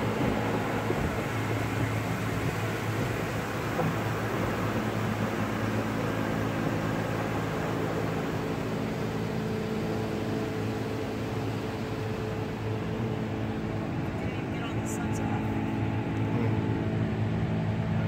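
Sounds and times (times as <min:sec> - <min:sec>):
water jets spraying on car: 0:00.0 - 0:15.7
machine hum: 0:00.0 - 0:18.0.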